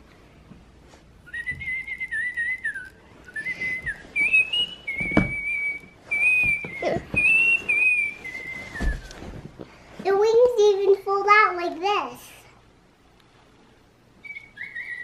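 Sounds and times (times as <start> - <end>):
electronic toy bird tweeting: 1.4 - 8.1, 14.2 - 15.0.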